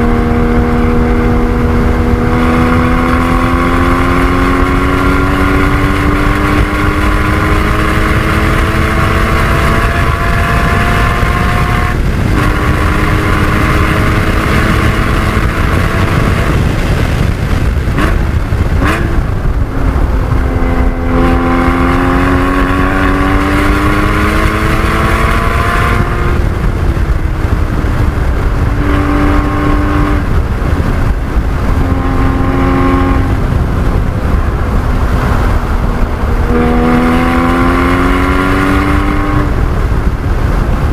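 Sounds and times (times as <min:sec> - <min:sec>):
sports car engine at full throttle: 0:00.0 - 0:40.9
wind and road roar: 0:00.0 - 0:40.9.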